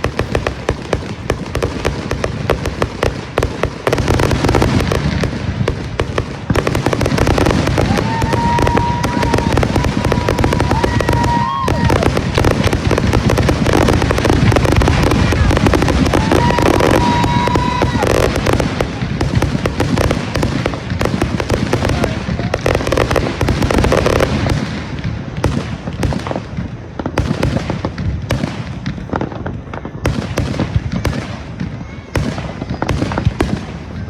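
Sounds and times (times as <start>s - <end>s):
fireworks crackling and banging: 0.0s - 34.0s
firework whistle: 6.5s - 24.5s.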